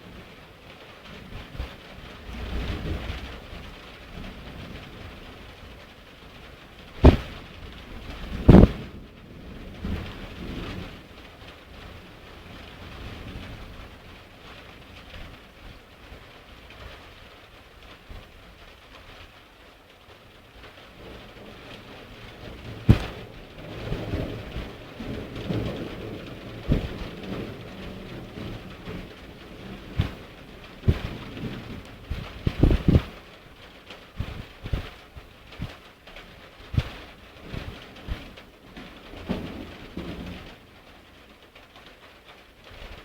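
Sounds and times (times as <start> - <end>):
low rumbles of thunder: 0.0 - 16.9, 20.6 - 41.4
steady rain: 0.0 - 43.0
sharp thunder cracks: 7.0 - 10.6, 21.4 - 33.2.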